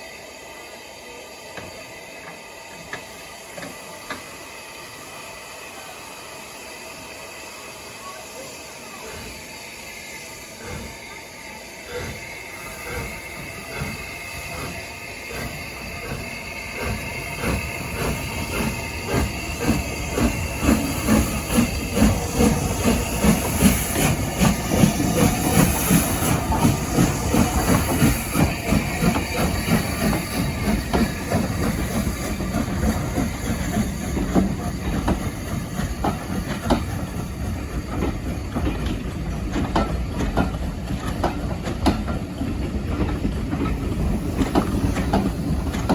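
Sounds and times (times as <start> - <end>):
hiss of steam: 0.0 - 45.9
steam train rhythmic beating: 0.0 - 45.9
rail clatter: 13.7 - 45.9.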